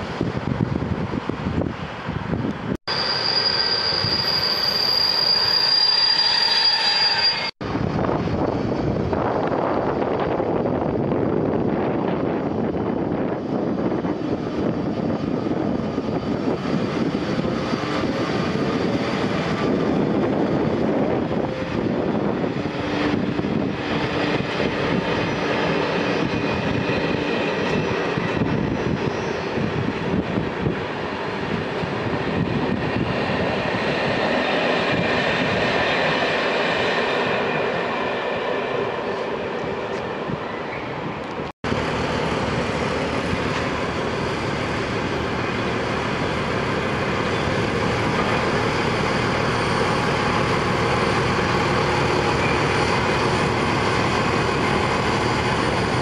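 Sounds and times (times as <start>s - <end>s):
electric locomotive motors humming: 0.0s - 56.0s
train wheels on rails: 0.0s - 56.0s.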